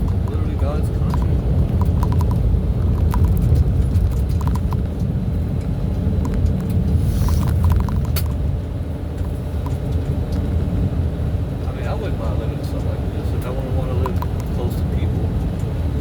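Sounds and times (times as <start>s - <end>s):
small rattling clicks: 0.0s - 5.1s, 6.2s - 8.4s
road noise: 0.0s - 16.0s
truck engine rumble: 0.0s - 16.0s.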